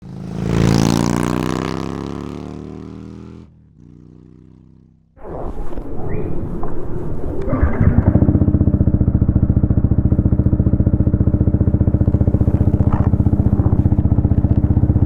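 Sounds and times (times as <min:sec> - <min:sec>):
deep pitched tone: 0:05.2 - 0:15.0
motorcycle engine pulsing: 0:05.2 - 0:15.0.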